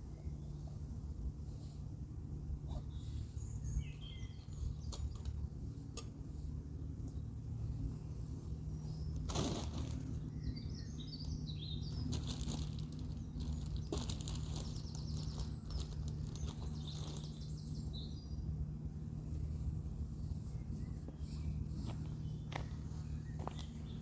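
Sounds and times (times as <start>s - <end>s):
steady low hum: 0.0s - 24.0s
small bird chirping: 2.7s - 5.5s, 7.0s - 18.6s.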